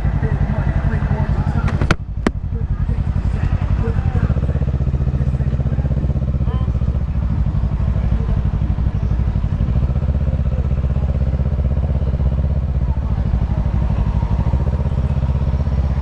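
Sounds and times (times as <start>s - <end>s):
motorcycle engine running: 1.6s - 2.4s.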